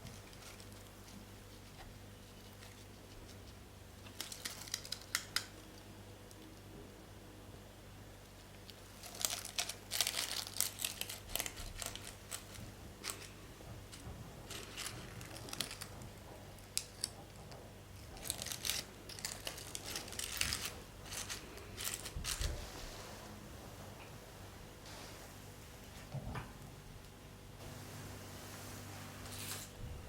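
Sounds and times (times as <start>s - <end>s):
packaging crinkling and rustling: 0.0s - 5.5s, 8.6s - 22.7s.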